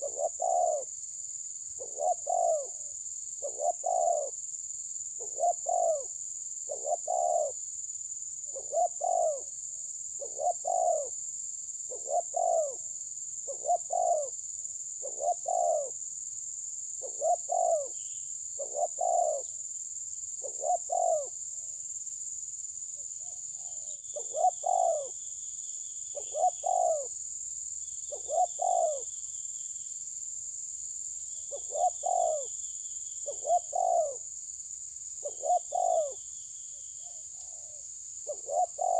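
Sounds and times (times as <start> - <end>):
higher trilling bird call: 0.0 - 0.9, 1.8 - 2.8, 3.4 - 4.3, 6.7 - 7.6, 8.6 - 9.5, 10.2 - 11.1, 17.0 - 19.5, 20.4 - 21.3, 23.8 - 25.2, 26.1 - 27.1, 28.1 - 29.1, 31.5 - 32.5, 33.2 - 34.2, 35.2 - 36.2, 37.0 - 38.9.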